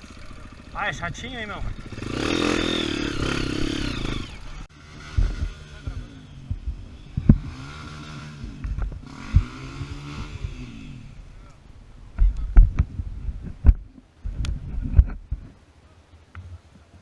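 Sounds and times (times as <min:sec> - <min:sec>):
motorcycle engine revving: 0:00.0 - 0:11.6
dull low thumps: 0:02.8 - 0:15.5.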